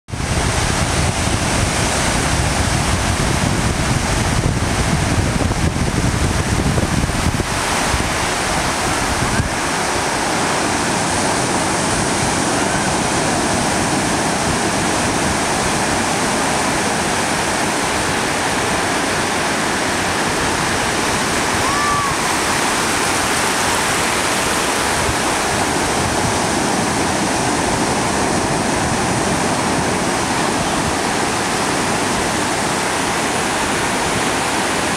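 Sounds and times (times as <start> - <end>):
sea surf washing: 0.1 - 34.9.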